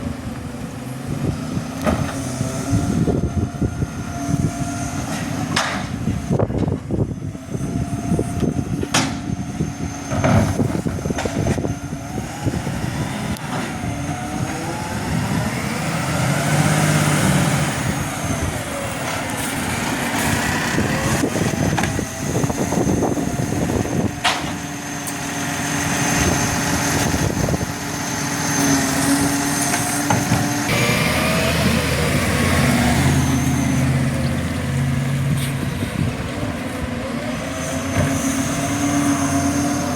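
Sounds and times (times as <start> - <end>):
garbage truck diesel engine revving: 0.0 - 39.9
whining pitch rises: 6.1 - 35.3.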